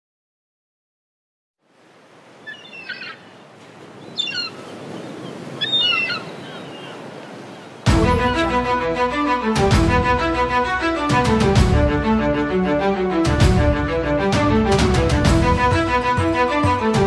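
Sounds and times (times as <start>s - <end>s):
birds chirping: 2.3s - 8.7s
bowed string music: 7.9s - 17.0s.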